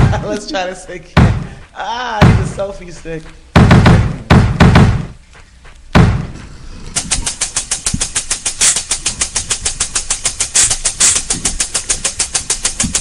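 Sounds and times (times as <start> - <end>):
heavy thumps: 0.0 - 13.0
fast even clicking: 5.6 - 13.0.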